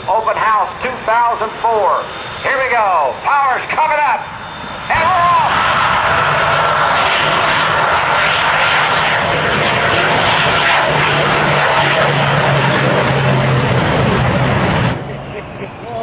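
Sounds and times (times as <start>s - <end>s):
jet engine whine: 0.0s - 16.0s
jet engines roaring: 0.0s - 16.0s
low hum: 0.0s - 16.0s.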